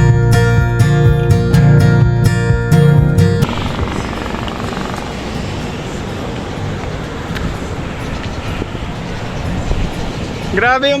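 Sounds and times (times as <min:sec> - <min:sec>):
road noise: 0:00.0 - 0:11.0
wind rush: 0:03.4 - 0:10.6.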